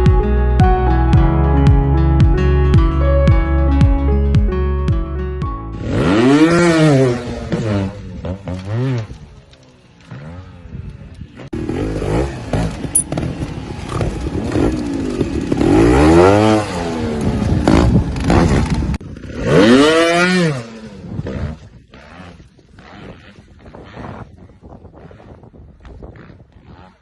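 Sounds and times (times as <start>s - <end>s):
dirt bike engines revving: 5.7s - 27.0s.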